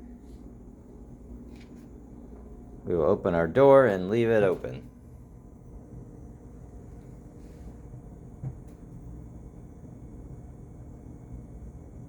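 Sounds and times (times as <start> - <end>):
refrigerator humming: 0.0 - 12.0.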